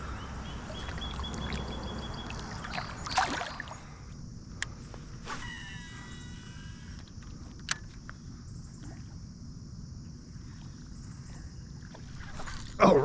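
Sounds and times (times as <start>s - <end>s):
creek water running: 0.0s - 4.1s.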